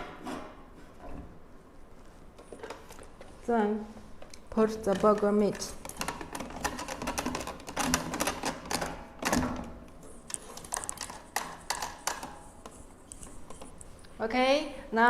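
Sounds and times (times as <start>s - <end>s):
plastic press clicking and rattling: 4.7s - 12.4s.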